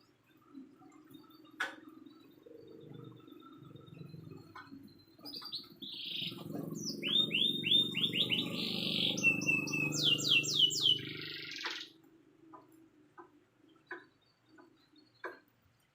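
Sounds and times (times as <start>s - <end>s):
low steady hum: 0.0s - 11.4s
canary singing: 2.2s - 11.9s.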